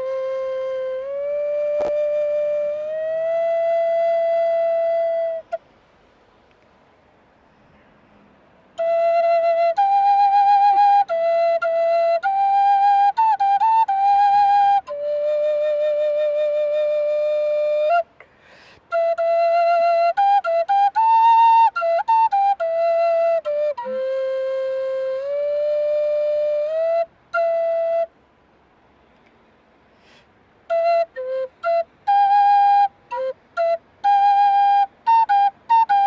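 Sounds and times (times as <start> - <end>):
solo flute melody: 0.0 - 5.7, 8.7 - 28.3, 30.0 - 36.0.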